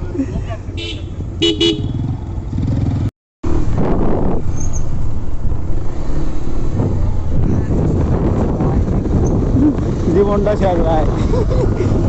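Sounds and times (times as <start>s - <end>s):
motorcycle engine running: 0.8s - 3.8s.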